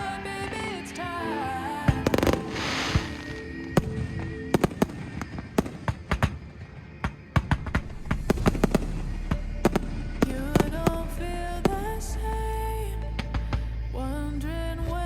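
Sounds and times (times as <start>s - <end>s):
music: 0.0s - 15.0s
fireworks banging: 2.0s - 11.0s.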